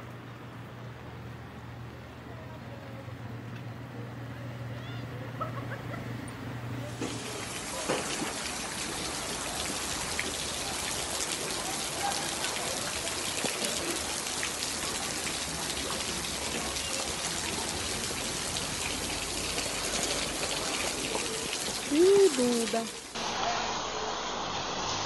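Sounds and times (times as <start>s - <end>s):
heavy rain splashing on water: 6.9s - 25.0s.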